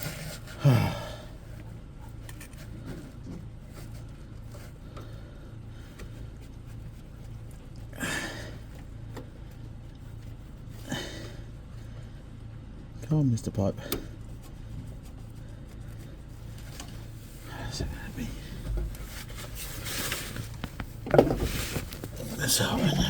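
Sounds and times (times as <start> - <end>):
rubber pipe scraping: 0.0 - 0.7, 14.1 - 23.0
steady low hum: 0.0 - 23.0
person grunting: 0.6 - 1.2.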